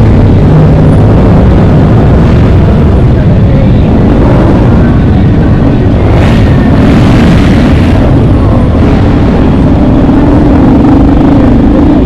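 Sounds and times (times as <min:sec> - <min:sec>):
heavy rumble on microphone: 0:00.0 - 0:12.0
motorcycle engine running: 0:00.0 - 0:12.0.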